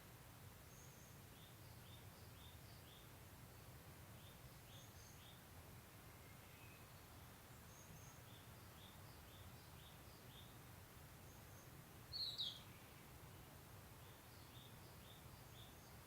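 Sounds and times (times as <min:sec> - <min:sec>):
small bird chirps: 0:00.6 - 0:05.4, 0:11.2 - 0:13.2, 0:14.0 - 0:16.0.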